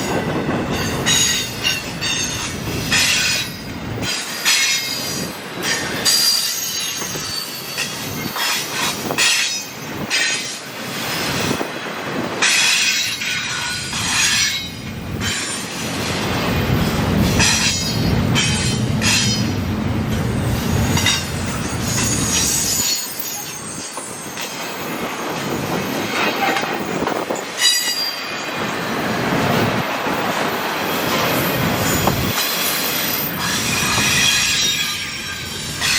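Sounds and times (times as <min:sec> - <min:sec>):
train wheels squealing: 0:00.0 - 0:11.6, 0:21.0 - 0:35.9
low train rumble: 0:00.0 - 0:35.9
train clanking and clattering: 0:00.0 - 0:35.9.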